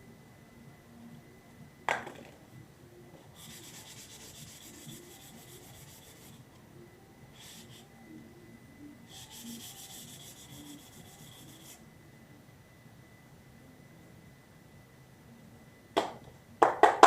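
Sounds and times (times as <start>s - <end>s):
sandpaper rubbing: 3.3s - 6.5s, 7.4s - 7.9s, 9.1s - 11.8s.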